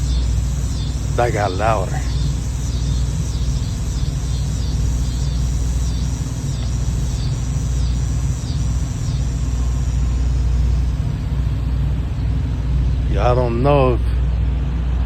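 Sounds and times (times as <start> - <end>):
bird high falling whistles: 0.0 - 11.2
steady low rumble: 0.0 - 15.0.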